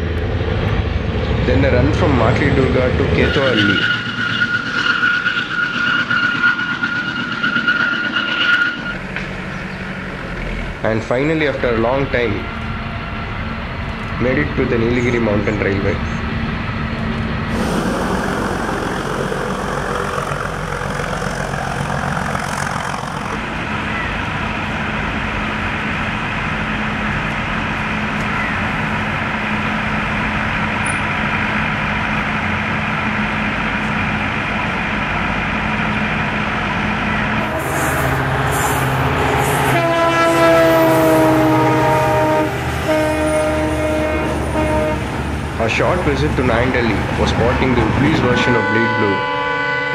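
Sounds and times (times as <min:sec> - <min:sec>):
train running: 0:00.0 - 0:49.9
locomotive horn: 0:37.4 - 0:45.4, 0:48.2 - 0:49.9.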